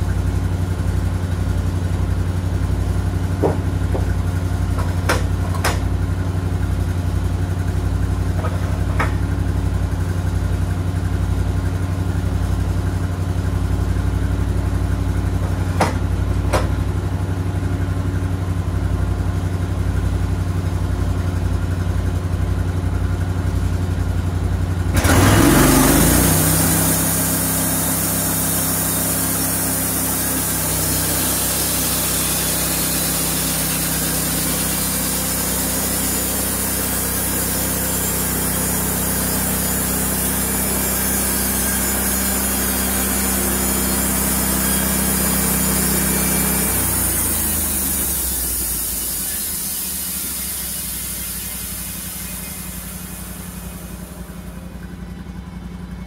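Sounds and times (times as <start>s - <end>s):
sawmill engine running under load: 0.0s - 56.0s
band blade hissing through wood: 26.0s - 54.8s.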